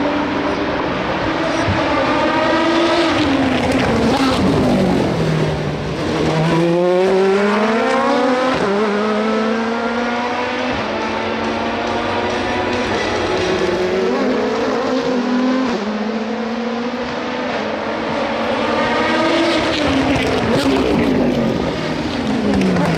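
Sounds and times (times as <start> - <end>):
race car accelerating through gears: 0.0 - 22.9
race car engine slowing: 0.3 - 8.3, 10.7 - 15.8, 18.5 - 22.9.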